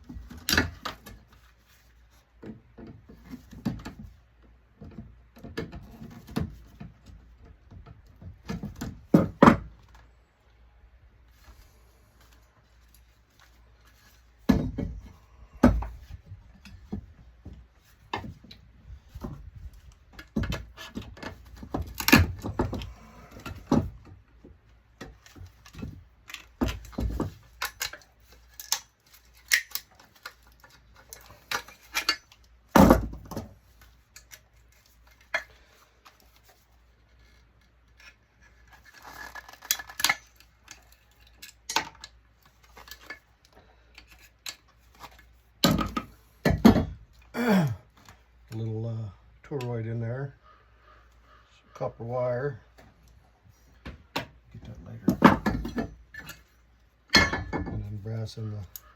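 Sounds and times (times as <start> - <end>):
metal parts and tools clinking: 25.1 - 36.4, 54.6 - 58.9.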